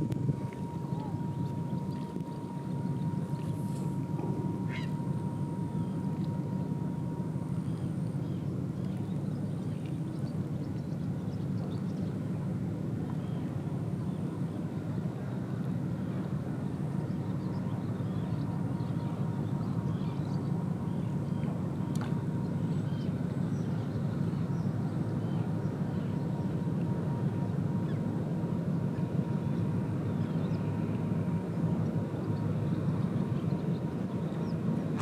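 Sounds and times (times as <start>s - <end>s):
low engine rumble: 0.0s - 35.0s
faint bird calls: 4.6s - 6.0s.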